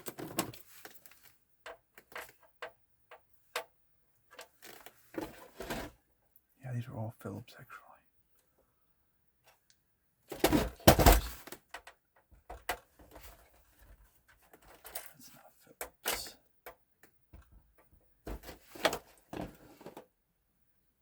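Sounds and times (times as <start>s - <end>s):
knocks and clatter of parts: 0.0s - 5.9s, 10.3s - 20.0s.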